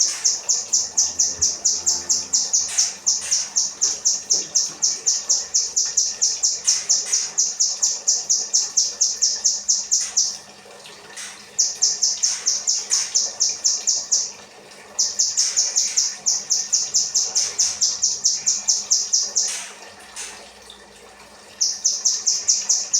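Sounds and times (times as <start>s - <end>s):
songbird singing rapid high notes: 0.0s - 10.4s.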